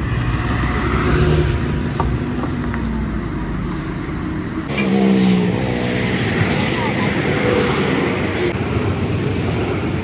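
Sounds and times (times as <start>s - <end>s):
traffic engine rumble: 0.0s - 10.0s.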